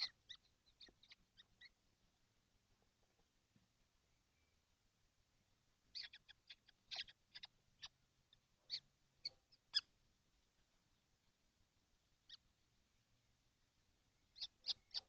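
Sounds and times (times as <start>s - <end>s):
young kestrels calling: 0.0s - 1.8s, 5.8s - 11.1s, 12.1s - 12.6s, 14.2s - 15.0s.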